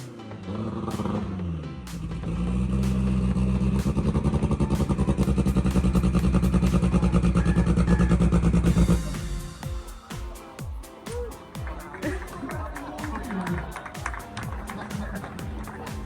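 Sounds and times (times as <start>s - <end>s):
car engine on launch limiter: 0.5s - 9.1s.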